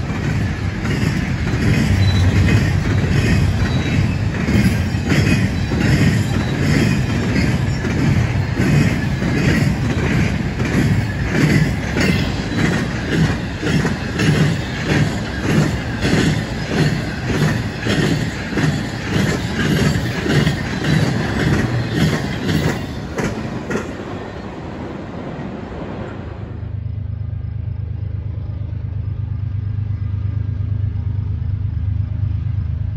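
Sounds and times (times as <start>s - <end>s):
train wheels clacking over rail joints: 0.0s - 24.1s
train rumble: 0.0s - 32.9s.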